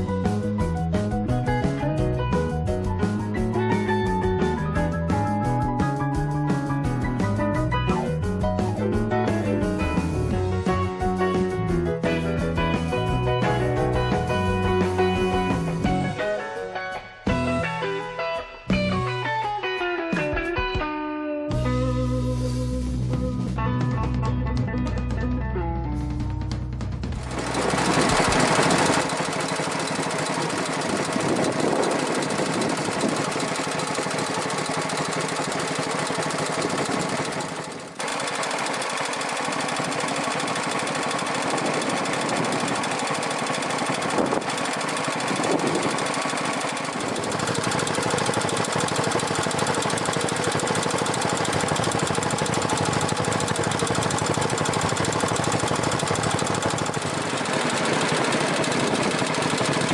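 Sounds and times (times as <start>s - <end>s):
stationary engine running: 0.0s - 16.3s, 26.9s - 59.9s.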